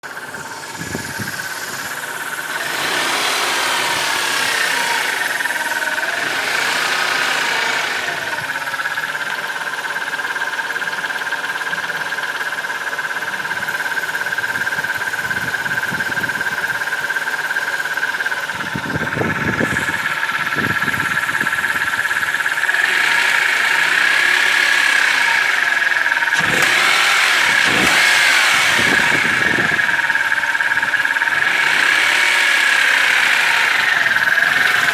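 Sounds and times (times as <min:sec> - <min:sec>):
steady high whine: 0:00.0 - 0:08.8, 0:18.4 - 0:34.9
lifters ticking clatter: 0:00.0 - 0:34.9
petrol engine revving: 0:00.0 - 0:34.9.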